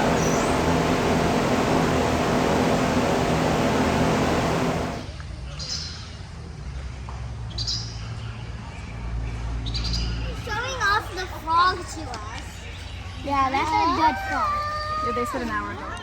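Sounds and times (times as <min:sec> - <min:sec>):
motor humming: 0:00.0 - 0:05.1.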